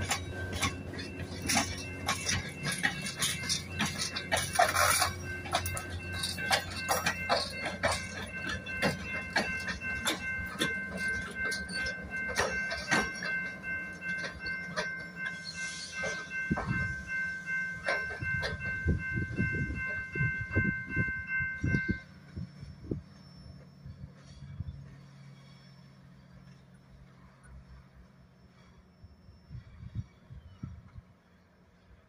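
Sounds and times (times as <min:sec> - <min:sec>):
level-crossing bell ringing: 0:00.0 - 0:24.2
train wheels clicking over rail joints: 0:00.0 - 0:28.9.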